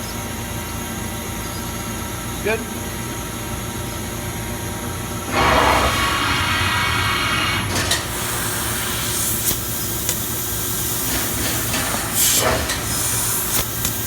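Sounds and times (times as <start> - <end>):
laser cutting machine humming: 5.2 - 14.0
machine hiss: 5.2 - 14.0.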